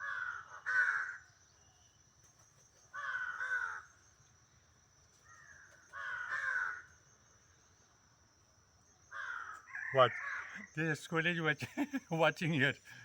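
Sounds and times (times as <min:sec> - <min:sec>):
crow cawing: 0:00.0 - 0:01.2, 0:02.9 - 0:03.9, 0:05.3 - 0:06.9, 0:09.1 - 0:10.7.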